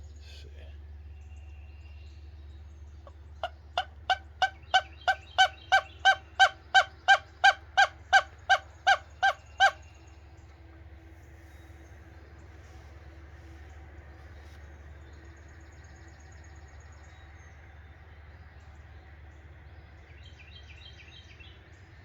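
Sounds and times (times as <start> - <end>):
bird honking calls: 3.0 - 10.1.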